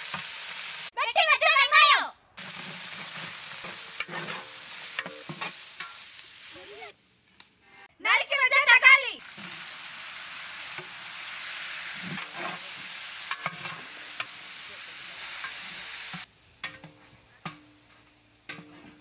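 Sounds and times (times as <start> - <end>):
food sizzling in a pan: 0.0 - 0.9, 2.4 - 7.6, 9.2 - 19.0.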